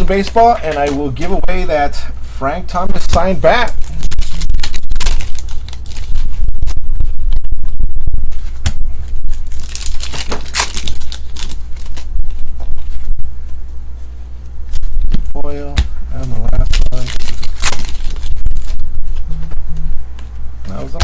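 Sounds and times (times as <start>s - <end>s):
foil wrappers tearing and crinkling: 3.6s - 6.4s, 9.3s - 12.9s, 16.3s - 18.8s.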